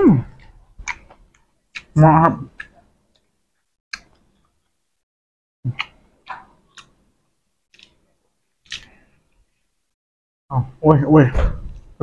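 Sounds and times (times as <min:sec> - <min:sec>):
mouth clicks: 0:05.7 - 0:07.0.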